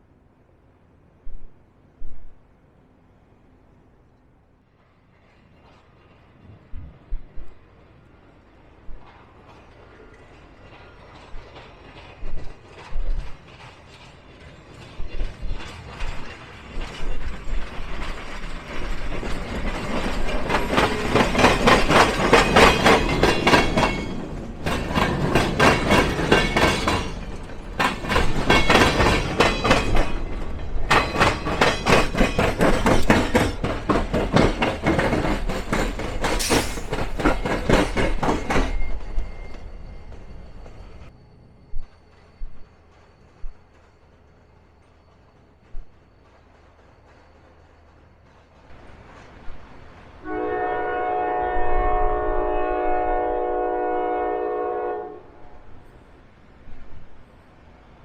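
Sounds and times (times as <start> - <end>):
train wheels clattering over crossing: 8.7 - 41.1.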